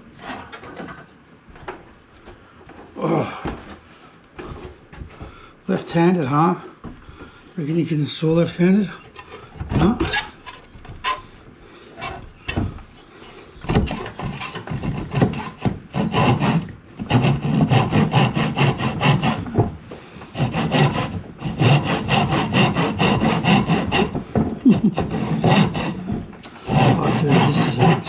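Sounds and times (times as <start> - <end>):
hand saw cutting wood: 9.0 - 28.0.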